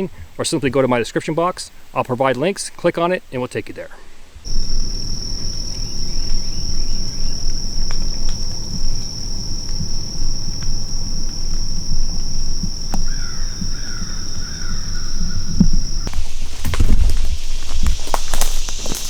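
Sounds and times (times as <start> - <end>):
dense low rumble: 4.5 - 19.0
high-pitched insect drone: 4.5 - 19.0.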